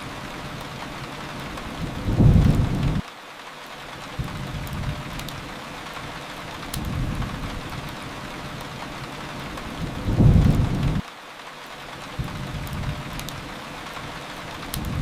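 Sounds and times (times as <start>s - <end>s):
steady rain: 0.0s - 15.0s
low rolls of thunder: 1.8s - 3.0s, 9.8s - 11.0s
faint sharp crackles: 12.0s - 15.0s.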